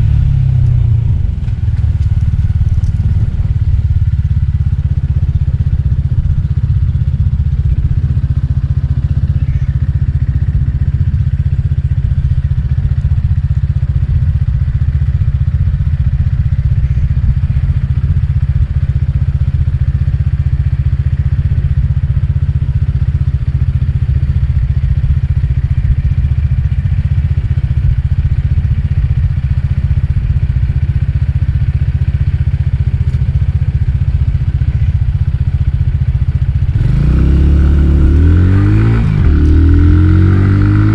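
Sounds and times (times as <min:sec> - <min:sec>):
wind rumble: 0:00.0 - 0:08.6
scooter engine cruising: 0:00.0 - 0:40.9.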